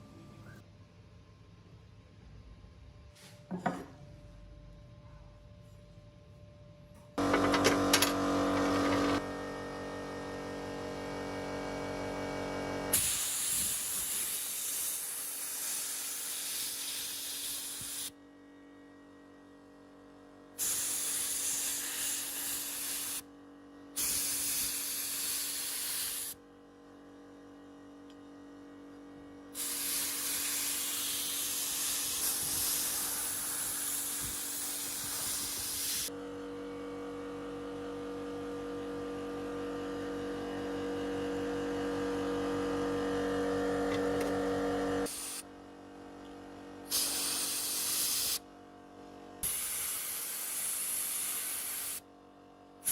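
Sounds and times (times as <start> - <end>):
spraying hiss: 13.0 - 18.1, 29.6 - 36.1, 46.9 - 48.4, 49.4 - 52.0.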